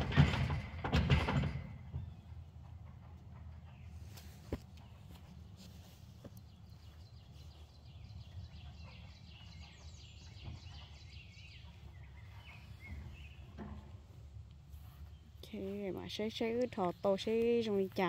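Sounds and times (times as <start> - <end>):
small birds chirping rapidly: 4.8 - 13.6.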